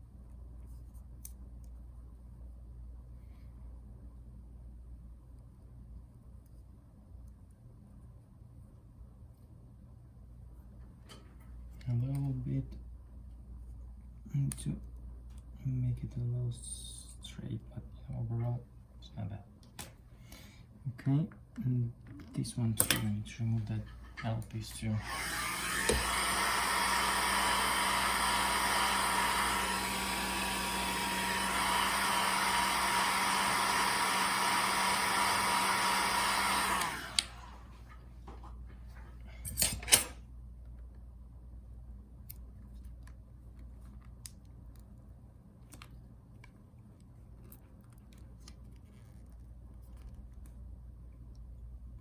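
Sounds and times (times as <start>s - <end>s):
hot-air blower humming and whining: 24.0s - 38.4s.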